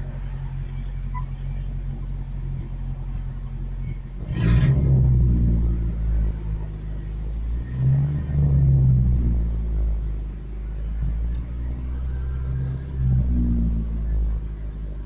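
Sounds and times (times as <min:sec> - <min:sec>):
pickup truck engine revving: 0:04.2 - 0:10.0.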